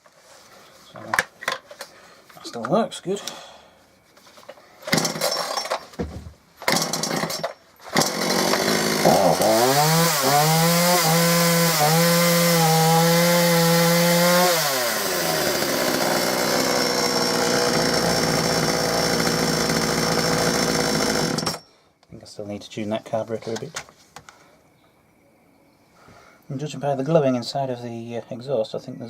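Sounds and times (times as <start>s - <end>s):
chainsaw engine revving: 6.7s - 21.6s.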